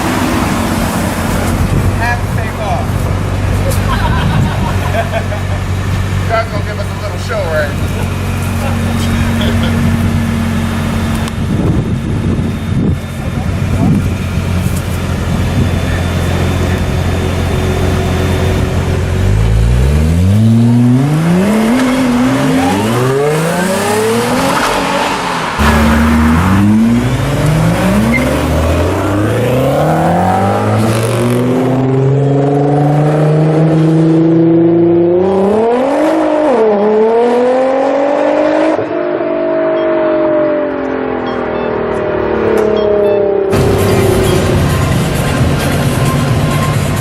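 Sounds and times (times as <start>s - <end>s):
car engine idling: 0.0s - 22.8s, 43.0s - 47.0s
car engine accelerating hard: 0.0s - 47.0s.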